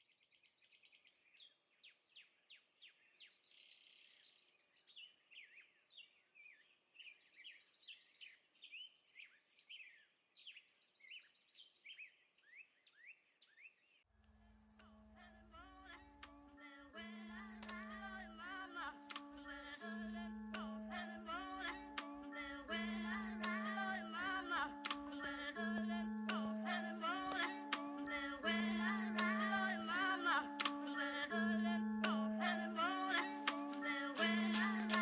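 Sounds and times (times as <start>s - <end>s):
music: 14.3s - 35.0s.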